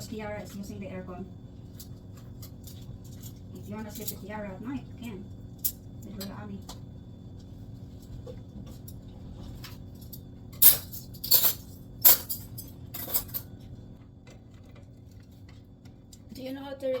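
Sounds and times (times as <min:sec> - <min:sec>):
faint steady hum: 0:00.0 - 0:17.0
kitchenware clinking: 0:10.6 - 0:13.5.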